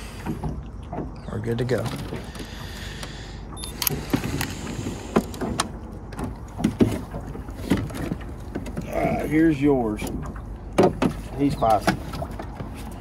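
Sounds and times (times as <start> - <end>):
low background rumble: 0.0 - 13.0
sharp knocks and clunks: 5.1 - 8.9, 10.0 - 12.8.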